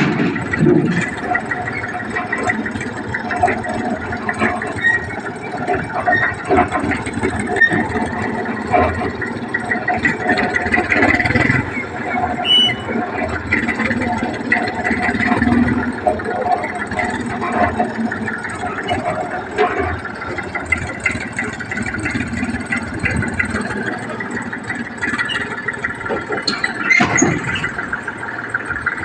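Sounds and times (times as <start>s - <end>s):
rattling tractor engine: 0.0s - 29.0s.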